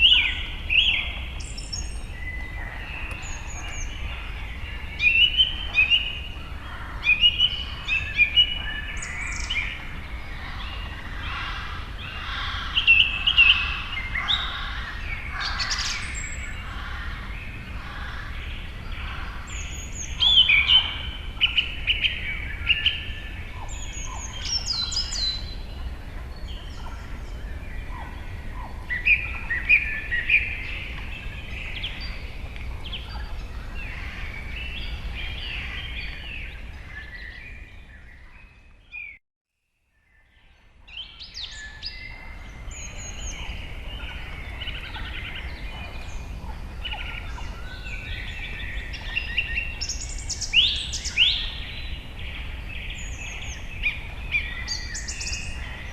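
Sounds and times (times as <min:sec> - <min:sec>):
birds chirping and trilling: 0:00.0 - 0:39.2, 0:39.9 - 0:55.9.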